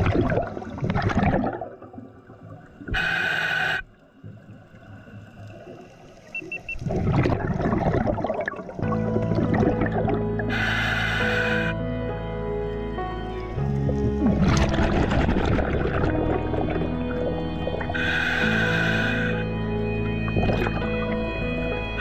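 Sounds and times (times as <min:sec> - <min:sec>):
exhaled bubbles rushing: 0:00.0 - 0:03.0, 0:04.3 - 0:10.5, 0:13.6 - 0:18.2, 0:20.1 - 0:21.5
regulator inhalation hiss: 0:02.9 - 0:04.0, 0:10.4 - 0:11.8, 0:17.9 - 0:19.6.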